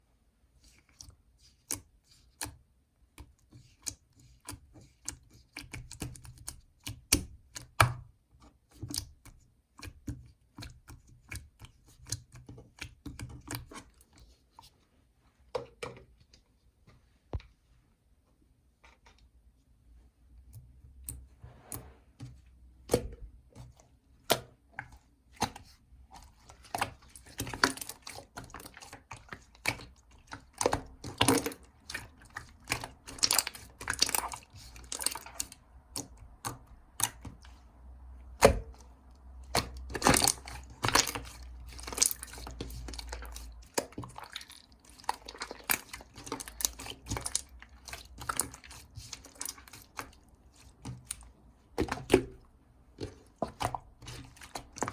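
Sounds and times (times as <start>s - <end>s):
slime squished by hand: 24.2s - 37.6s, 38.3s - 54.9s.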